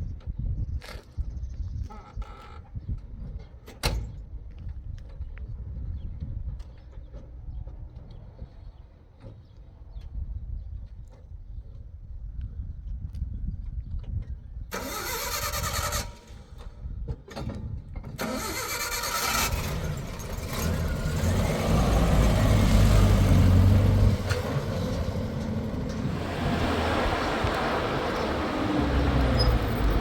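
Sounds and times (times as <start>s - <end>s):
engine cranking: 14.7s - 16.7s, 18.1s - 30.0s
engine running: 18.2s - 30.0s.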